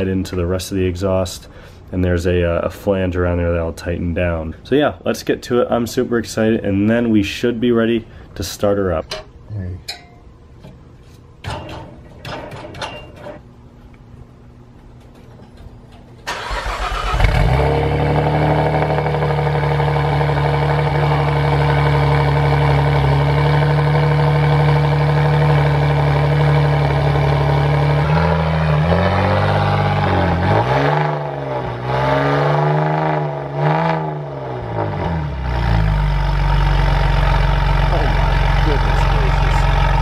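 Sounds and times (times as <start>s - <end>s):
car engine cranking and starting: 16.2s - 33.2s, 34.6s - 40.0s
car engine idling: 16.3s - 30.6s, 34.6s - 40.0s
car engine revving: 16.3s - 40.0s.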